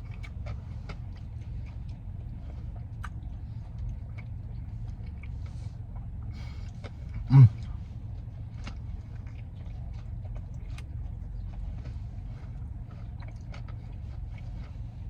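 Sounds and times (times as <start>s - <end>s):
mouth clicks and crunches: 0.0s - 7.8s, 8.4s - 15.0s
person chewing: 0.0s - 15.0s
steady low hum: 0.0s - 15.0s.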